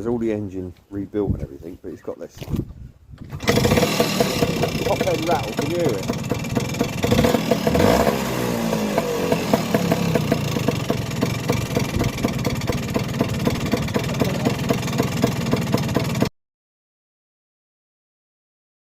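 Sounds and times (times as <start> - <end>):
fast ticking engine rattle: 3.3 - 16.3
scooter engine idling: 3.3 - 16.3.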